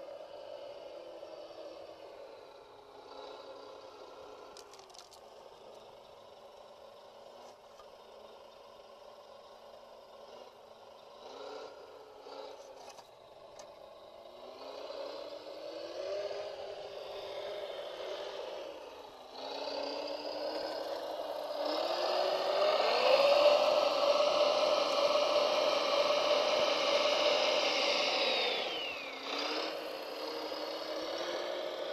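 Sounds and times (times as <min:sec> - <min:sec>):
electric motor whine: 0:13.6 - 0:31.9.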